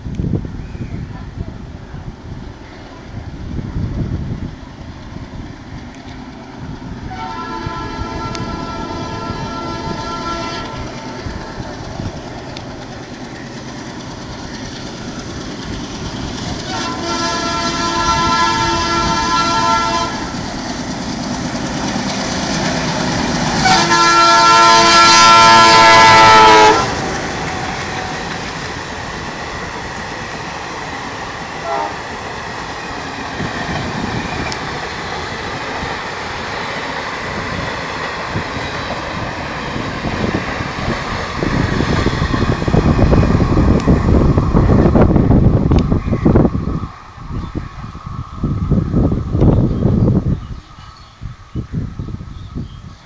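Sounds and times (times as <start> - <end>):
train coaches rumbling past: 0.0 - 53.0
train horn blasts: 7.0 - 11.4, 16.6 - 20.4, 23.5 - 28.3, 31.6 - 32.0.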